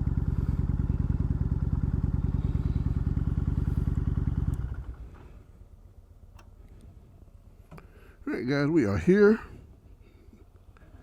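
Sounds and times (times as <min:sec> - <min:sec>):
motorcycle engine running: 0:00.0 - 0:05.5.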